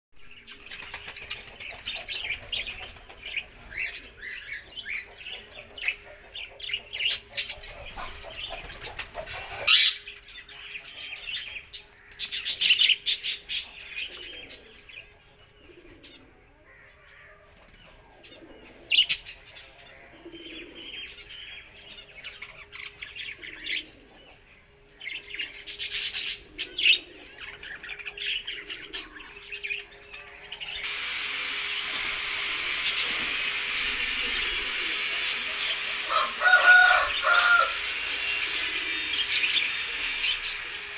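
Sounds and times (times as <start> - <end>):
small birds chirping: 0.2 - 40.9
wings flapping: 0.6 - 3.7, 7.7 - 9.7, 31.6 - 40.6.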